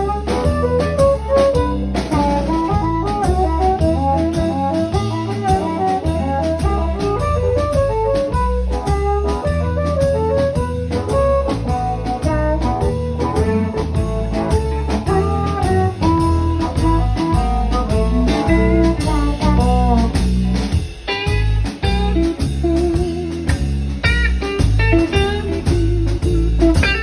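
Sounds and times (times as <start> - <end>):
lead instrument melodic phrases: 0.0 - 27.0
regular drum beat: 0.0 - 27.0
steady bass line: 0.0 - 27.0.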